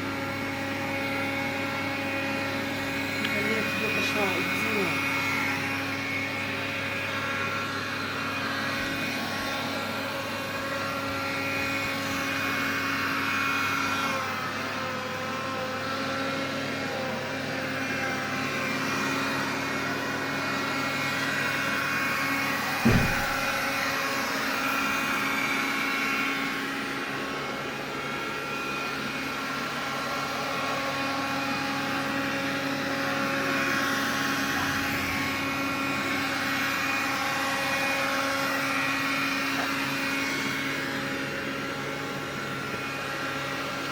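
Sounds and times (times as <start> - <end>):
vacuum cleaner whine: 0.0 - 43.9
short knock: 22.8 - 23.5.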